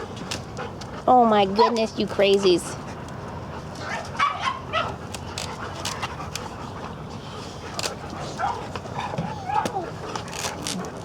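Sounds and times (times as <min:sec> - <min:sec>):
dog panting: 0:00.0 - 0:11.0
dog whining: 0:08.2 - 0:10.9.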